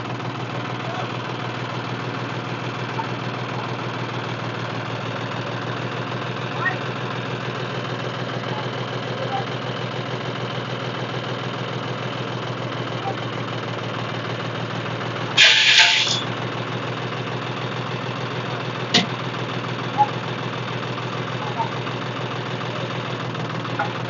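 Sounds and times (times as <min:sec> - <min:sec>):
tractor engine idling: 0:00.0 - 0:24.0
loud hiss: 0:15.4 - 0:16.3
short sharp click: 0:15.4 - 0:16.3.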